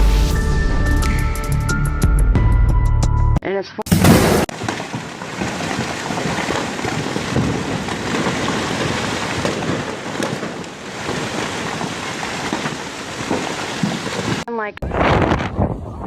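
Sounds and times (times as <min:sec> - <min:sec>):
wind: 0:04.4 - 0:16.0
turbulent floodwater rushing: 0:04.5 - 0:14.5.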